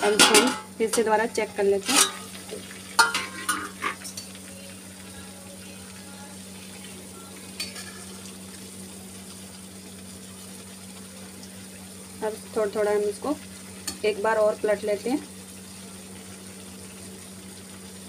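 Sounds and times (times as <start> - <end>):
metal lid clattering: 0.0 - 0.7, 1.8 - 2.3, 3.0 - 4.2
food sizzling in oil: 0.0 - 18.0
spatula clinking on pan: 3.0 - 4.3.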